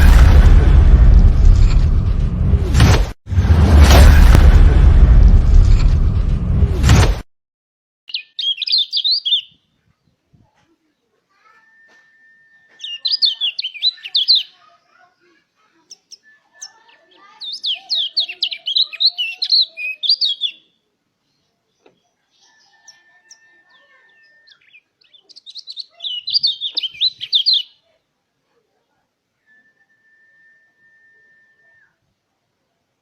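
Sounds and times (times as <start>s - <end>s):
bird twittering song: 8.1s - 9.6s, 12.6s - 14.6s, 15.9s - 20.6s, 21.3s - 27.8s
faint high whistle-like tone: 11.6s - 12.8s, 29.4s - 32.1s.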